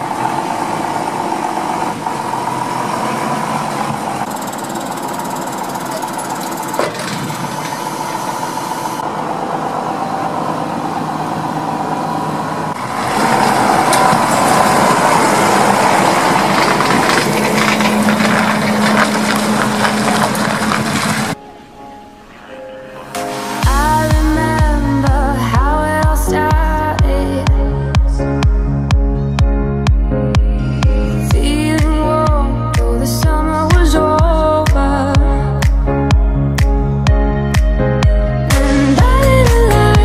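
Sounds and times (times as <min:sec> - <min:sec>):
tractor diesel engine running: 0:00.0 - 0:21.5.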